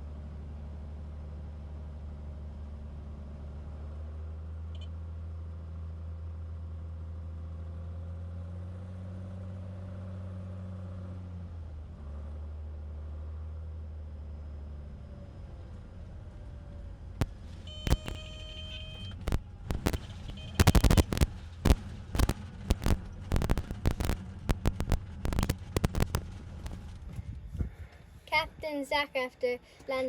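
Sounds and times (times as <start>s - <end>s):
faint short click: 4.7s - 4.9s.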